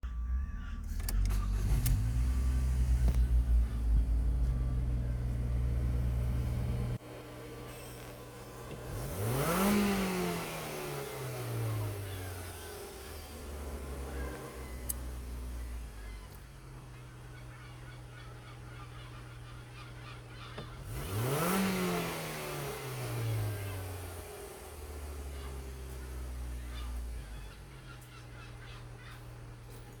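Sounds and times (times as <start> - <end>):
car engine idling: 0.0 - 30.0
clicks: 0.8 - 7.0, 12.2 - 16.5.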